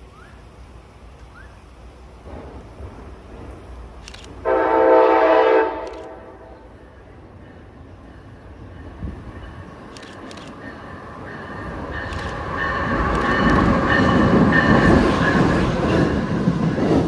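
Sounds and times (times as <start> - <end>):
train horn blast: 4.4 - 6.7.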